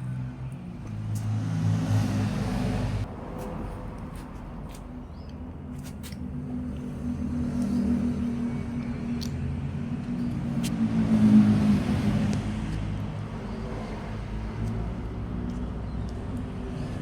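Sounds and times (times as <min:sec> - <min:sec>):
vehicle engine passing: 0:00.2 - 0:03.7, 0:07.0 - 0:17.0.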